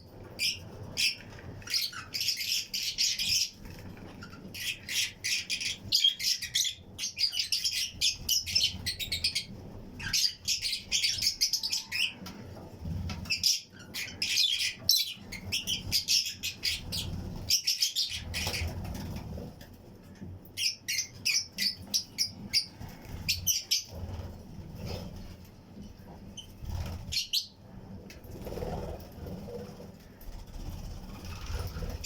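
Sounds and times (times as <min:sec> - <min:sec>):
lovebirds chirping: 0:00.0 - 0:12.3, 0:13.2 - 0:19.2, 0:20.6 - 0:24.2.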